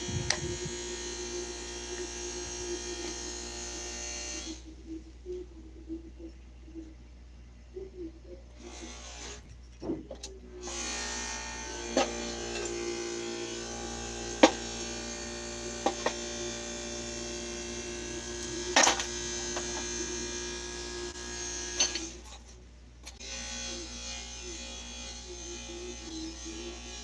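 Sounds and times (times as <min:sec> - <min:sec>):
small motor buzzing: 0:00.0 - 0:04.6, 0:10.6 - 0:22.3, 0:23.1 - 0:27.0.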